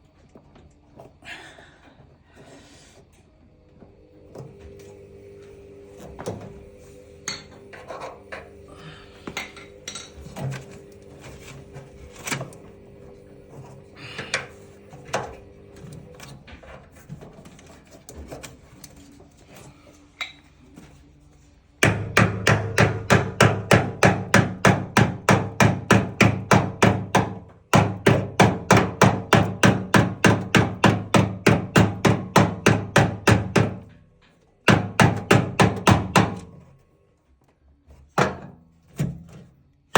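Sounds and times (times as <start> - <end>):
parts knocking and clicking: 21.8 - 36.7.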